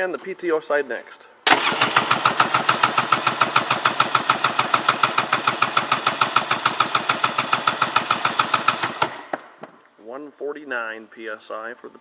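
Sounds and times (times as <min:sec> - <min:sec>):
engine cranking chuffing: 0:01.5 - 0:09.4.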